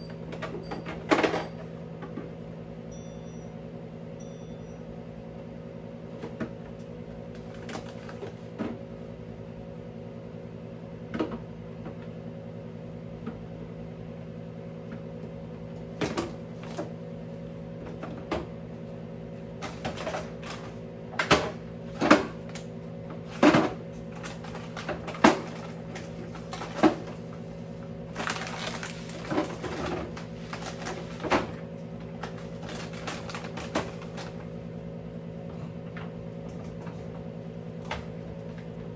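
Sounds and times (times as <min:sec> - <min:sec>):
steady low hum: 0:00.0 - 0:38.9
household items clattering: 0:28.2 - 0:31.5.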